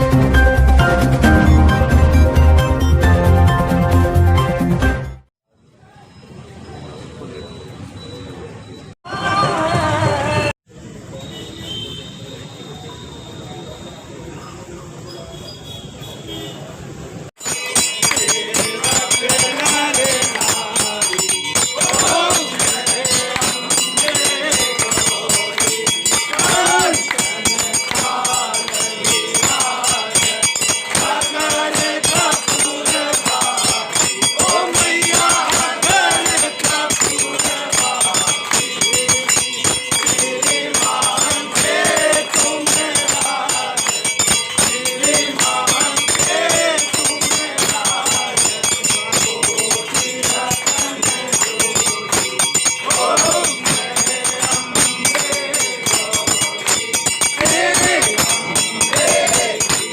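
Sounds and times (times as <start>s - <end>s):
jingling clashing percussion: 17.4s - 59.9s
group singing: 17.7s - 59.9s.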